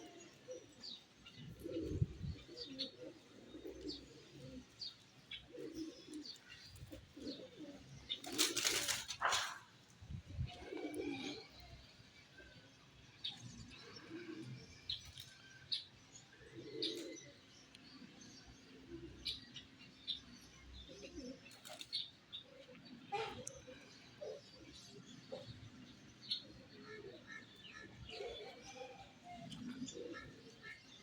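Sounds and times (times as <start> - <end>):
pigeons cooing: 0.0 - 11.8, 13.6 - 15.0, 16.4 - 17.5, 20.7 - 31.0
wings flapping: 8.2 - 9.6.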